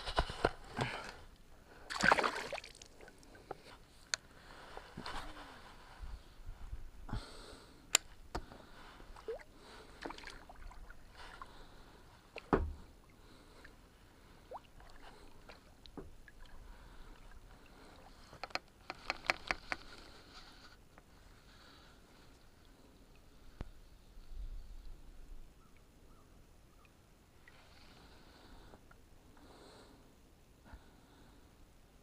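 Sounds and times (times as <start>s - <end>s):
small clicks and knocks: 18.3s - 20.1s.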